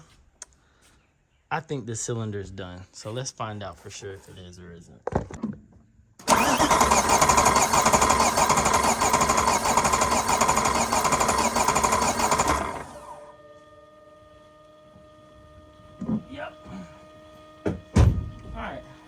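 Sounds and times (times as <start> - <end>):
engine cranking on starter motor: 6.2 - 13.4.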